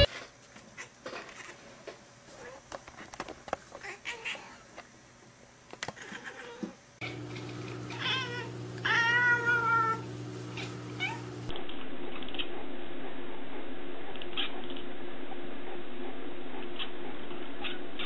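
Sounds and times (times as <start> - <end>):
cat meowing: 6.0 - 6.8, 7.9 - 10.0, 10.6 - 11.3.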